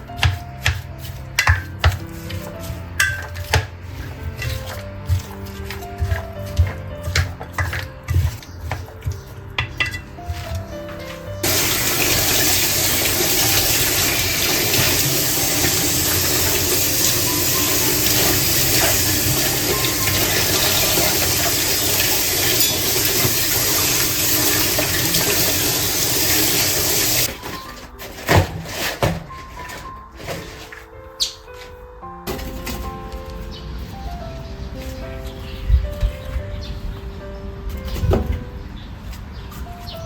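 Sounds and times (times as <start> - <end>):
water running: 11.4 - 27.3.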